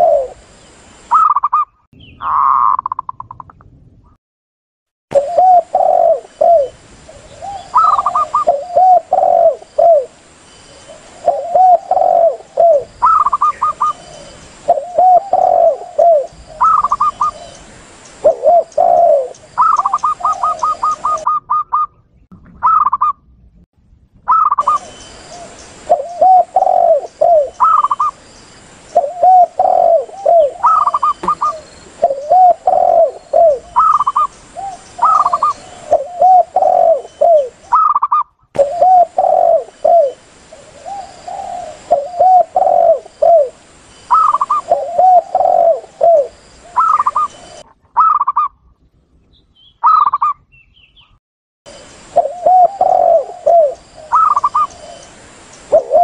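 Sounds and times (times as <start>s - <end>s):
doves cooing low phrases: 0.0s - 0.5s, 5.1s - 23.1s, 24.3s - 28.2s, 28.8s - 48.5s, 51.8s - 56.0s
higher dove cooing runs: 29.0s - 34.3s, 38.6s - 40.2s.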